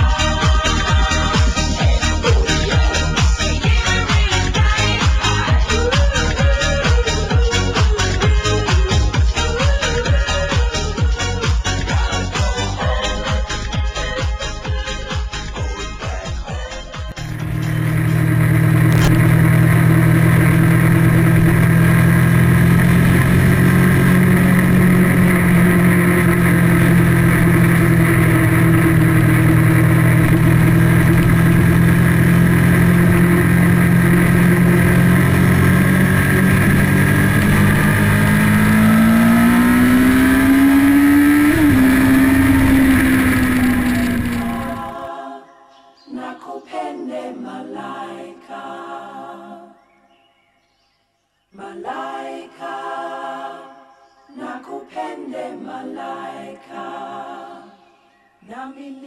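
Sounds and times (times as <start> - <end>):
motorcycle engine running: 0.0 - 7.4, 17.1 - 45.1.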